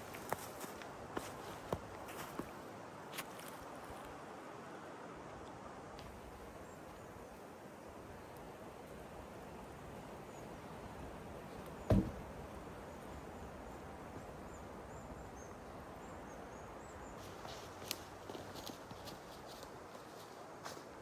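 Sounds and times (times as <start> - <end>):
outdoor background hiss: 0.0 - 21.0
dull thump: 11.9 - 12.4.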